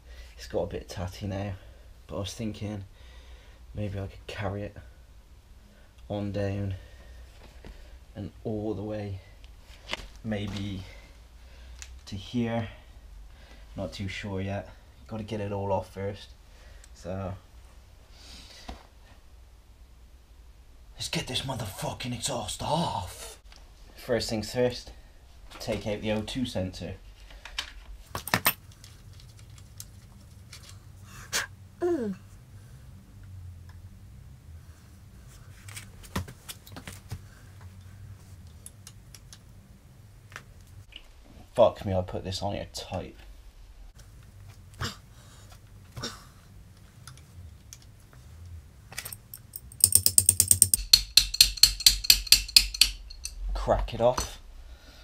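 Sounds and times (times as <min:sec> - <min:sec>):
person humming low: 0:31.1 - 0:32.4
metal tools clinking on metal: 0:49.0 - 0:53.4
ratchet wrench clicking: 0:49.3 - 0:53.4.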